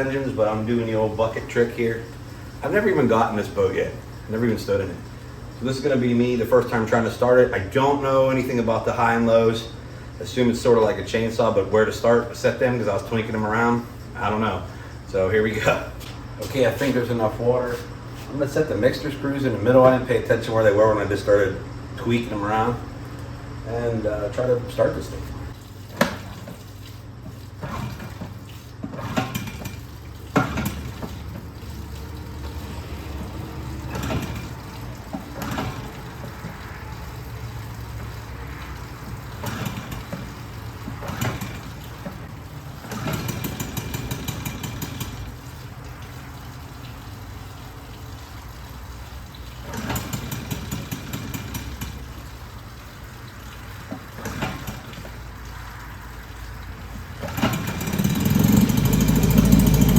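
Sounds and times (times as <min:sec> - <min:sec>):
outboard motor running: 0:23.6 - 0:46.4, 0:48.9 - 0:52.6, 0:56.6 - 0:59.9
outboard motor pull-start: 0:25.7 - 0:46.0, 0:49.4 - 0:52.3, 0:53.8 - 0:55.8, 0:57.0 - 0:59.9.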